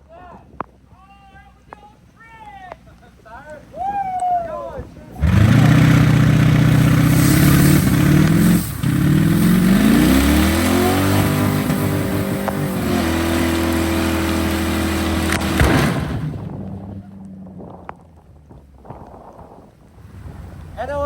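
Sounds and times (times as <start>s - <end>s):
car engine accelerating hard: 4.9s - 21.0s.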